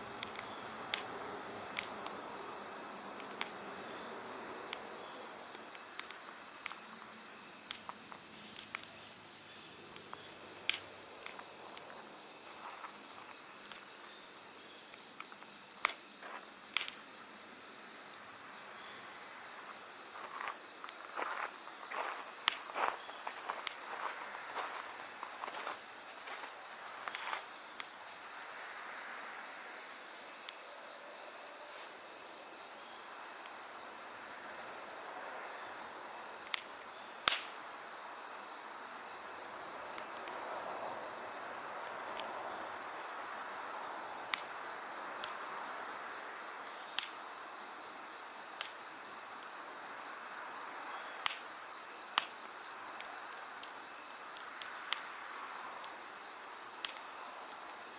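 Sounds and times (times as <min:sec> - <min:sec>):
campfire crackling and popping: 0:00.0 - 0:28.9, 0:29.7 - 0:30.7, 0:31.3 - 0:57.9
crickets chirping: 0:00.0 - 0:57.9.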